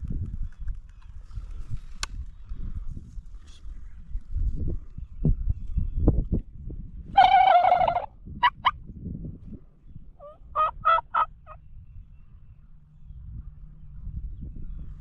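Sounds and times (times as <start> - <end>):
turkey gobbling: 7.2 - 8.8, 10.2 - 11.3
turkey yelping: 7.2 - 8.8, 10.2 - 11.4.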